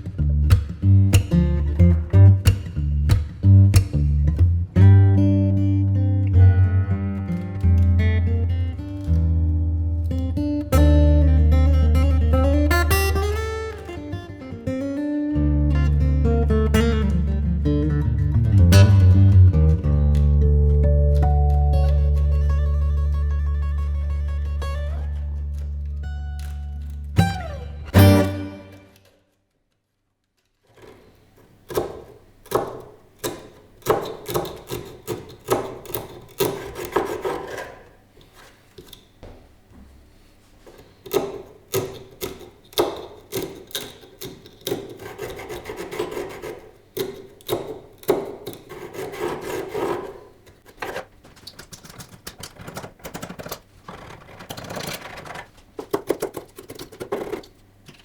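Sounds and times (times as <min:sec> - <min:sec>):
music: 0:00.0 - 0:29.0.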